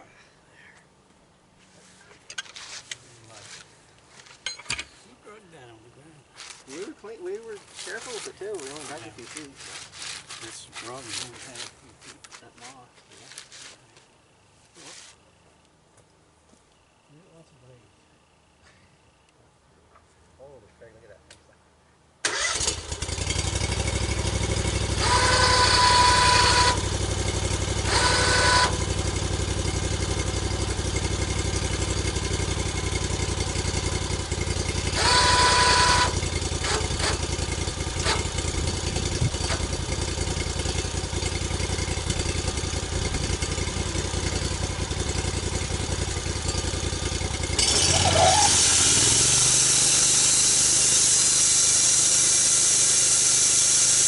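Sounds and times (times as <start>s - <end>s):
engine idling: 22.3s - 54.0s
short high-pitched squeals: 25.0s - 26.9s, 27.8s - 28.8s, 34.9s - 37.3s, 47.6s - 54.0s
loud steady hiss: 48.6s - 54.0s.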